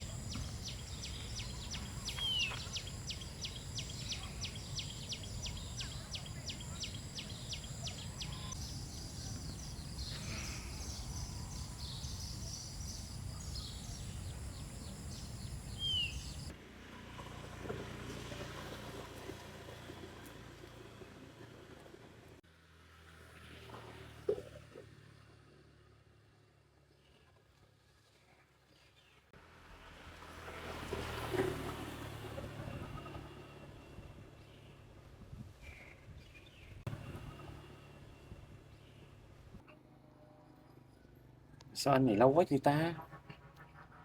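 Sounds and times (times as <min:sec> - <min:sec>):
high insect drone: 0:00.0 - 0:16.5.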